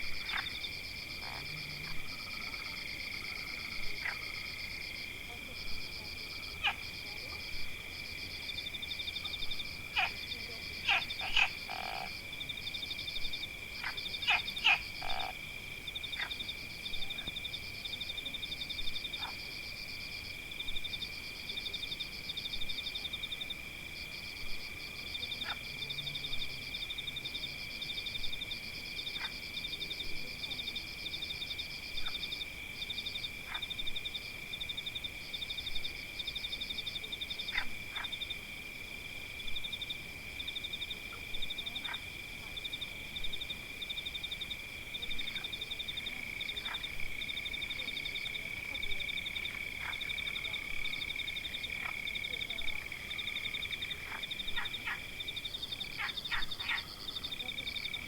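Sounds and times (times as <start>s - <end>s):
frogs trilling: 6.3s - 7.5s, 8.6s - 12.2s, 13.3s - 15.4s, 45.1s - 58.0s
fast pulsing frog calls: 10.8s - 12.1s, 13.8s - 15.3s, 52.8s - 57.9s.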